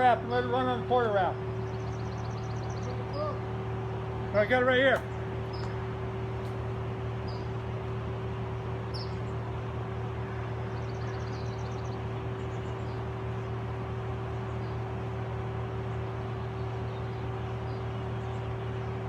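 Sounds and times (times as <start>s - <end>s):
small birds chirping: 0.6s - 19.0s
high bird trill: 1.4s - 3.8s, 8.8s - 13.6s.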